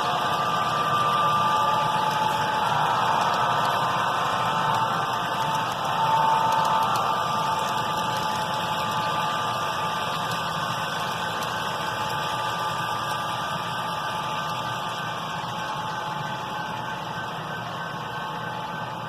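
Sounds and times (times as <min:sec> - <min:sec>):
model train whirring on track: 0:00.0 - 0:19.0.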